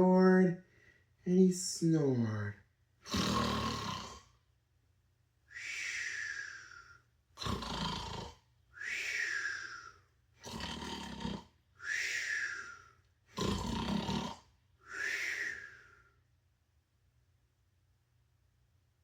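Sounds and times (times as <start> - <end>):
man imitating snoring: 3.0 - 4.3, 7.4 - 8.4, 10.4 - 11.6, 13.3 - 15.6.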